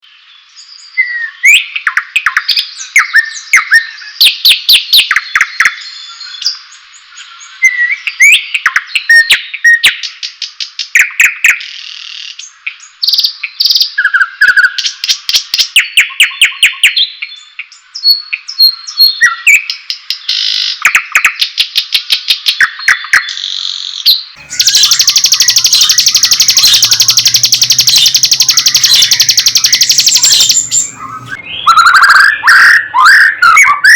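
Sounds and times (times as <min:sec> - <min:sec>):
songbird whistling and trilling: 0:00.5 - 0:06.6, 0:24.4 - 0:33.9
harsh rapid bird rattle: 0:24.4 - 0:31.4.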